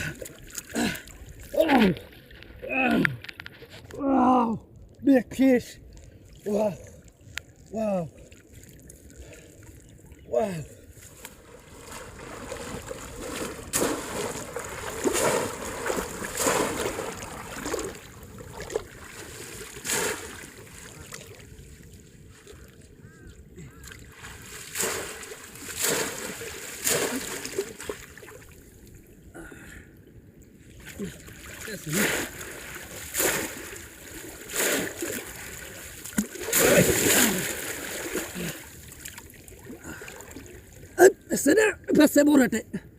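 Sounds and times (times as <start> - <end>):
shallow water sloshing: 5.8 - 29.3, 30.6 - 41.0
sharp water splashes: 11.0 - 21.7, 23.8 - 28.6, 30.8 - 40.8.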